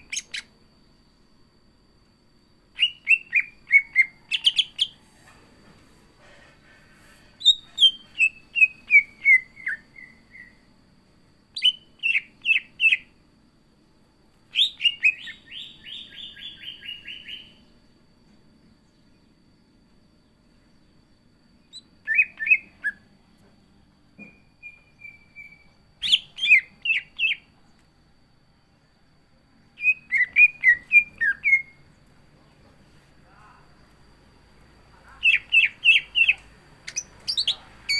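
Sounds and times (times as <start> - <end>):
bird singing whistled phrases: 0.0 - 0.5, 2.8 - 5.0, 7.4 - 10.6, 11.6 - 13.1, 14.5 - 17.6, 21.6 - 23.1, 24.2 - 27.5, 29.8 - 31.9, 35.2 - 37.9.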